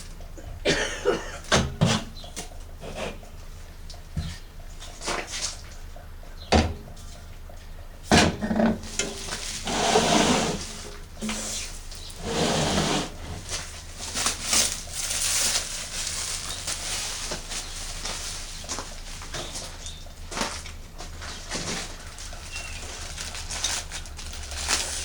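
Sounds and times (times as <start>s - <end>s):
packing material rustling: 13.4s - 19.8s, 21.3s - 25.0s.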